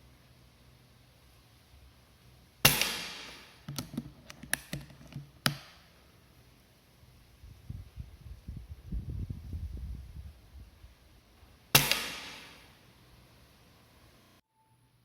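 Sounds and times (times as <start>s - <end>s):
air rifle shot: 2.6s - 3.7s, 11.8s - 12.8s
rifle bolt clicks and snap: 2.7s - 5.7s.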